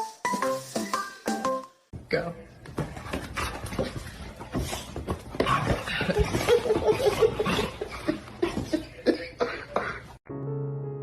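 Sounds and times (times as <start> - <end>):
person laughing: 6.0 - 10.2.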